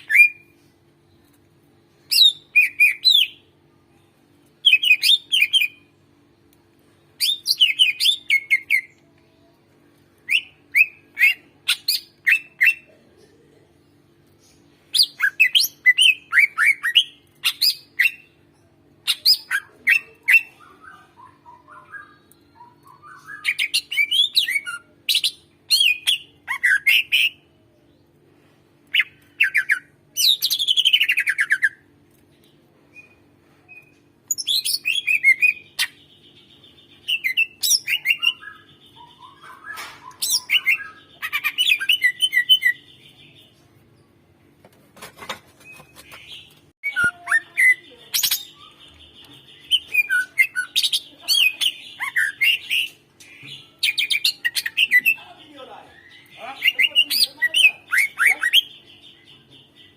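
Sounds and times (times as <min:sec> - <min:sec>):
bird singing chirps and trills: 0:10.1 - 0:27.8, 0:28.9 - 0:44.2, 0:45.6 - 0:59.9.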